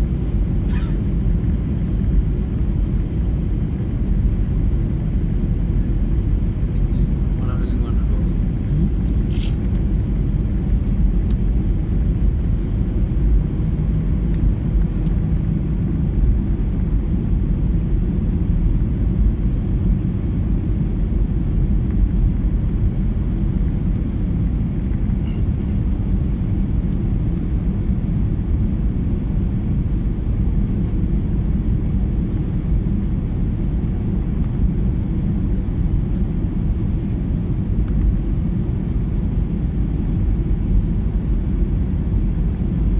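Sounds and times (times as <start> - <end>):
aircraft engines rumbling: 0.0 - 42.9.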